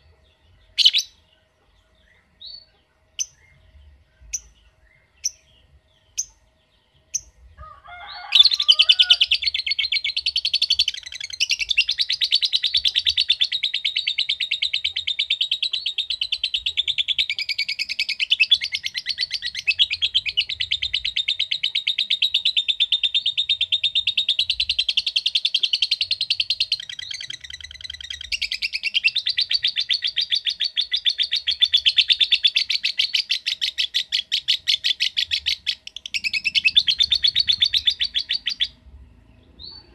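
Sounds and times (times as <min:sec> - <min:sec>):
lovebird chattering chirps: 0:08.5 - 0:38.8.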